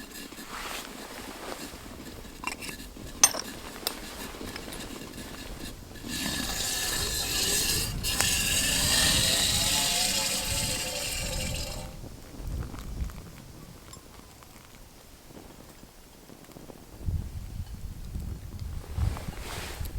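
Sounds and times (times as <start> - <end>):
metal cookware clinking: 2.3 - 12.0
water pouring into vessel: 5.9 - 12.0.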